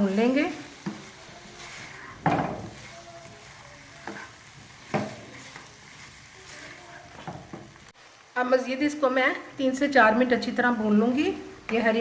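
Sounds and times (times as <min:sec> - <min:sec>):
spoon scraping a pan: 0:00.0 - 0:07.6
meat sizzling in a pan: 0:00.0 - 0:12.0.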